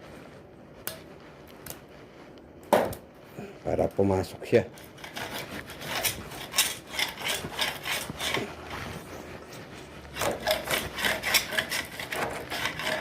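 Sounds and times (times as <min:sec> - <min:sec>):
scraping silicone from door frame: 0:04.8 - 0:13.0.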